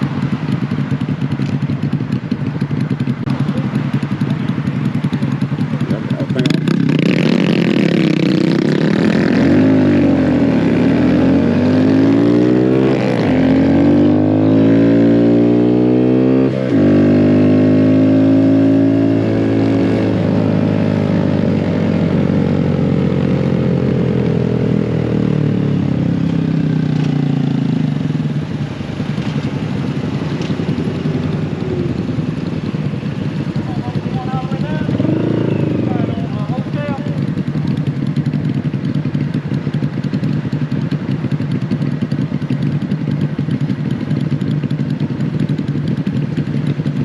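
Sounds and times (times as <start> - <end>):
small motorcycle engine revving: 5.1 - 24.1, 29.3 - 41.0.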